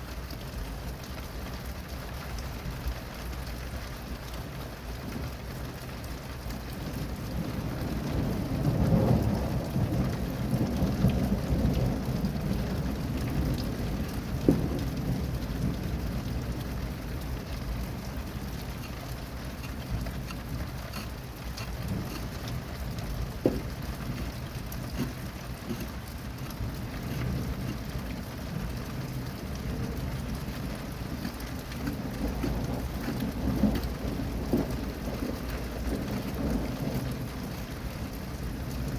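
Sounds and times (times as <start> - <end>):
steady rain: 0.0 - 38.9
thunder rolling: 17.8 - 37.5.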